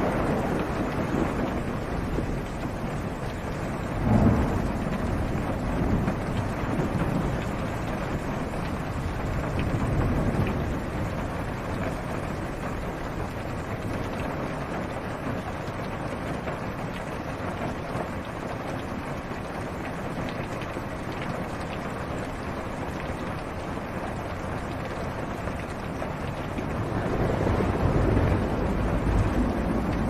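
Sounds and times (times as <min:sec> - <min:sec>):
low thunder rumble: 0:00.0 - 0:14.2, 0:24.5 - 0:30.0
rain on car roof: 0:00.0 - 0:30.0.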